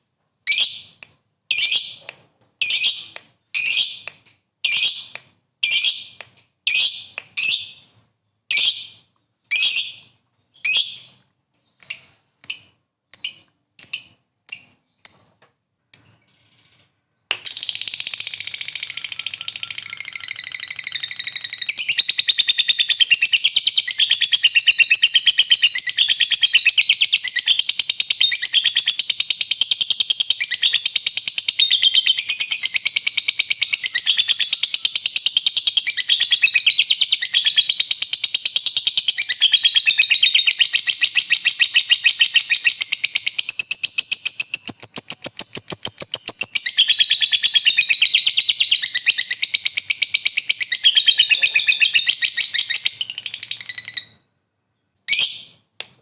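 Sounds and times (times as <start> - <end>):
lovebird rapid chatter trill: 17.5 - 23.4, 42.8 - 54.1.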